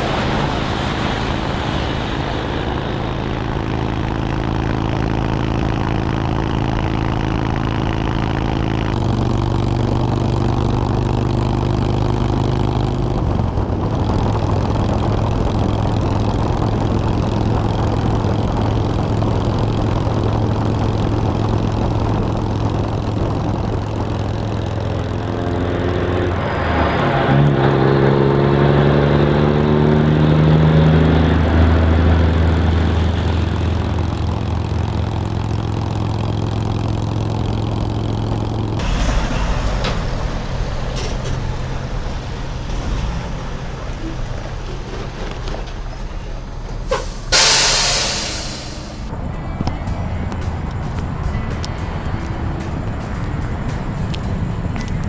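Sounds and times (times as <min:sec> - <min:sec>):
motorcycle engine running: 0:00.0 - 0:46.5, 0:47.3 - 0:55.0
wind noise: 0:48.4 - 0:55.0.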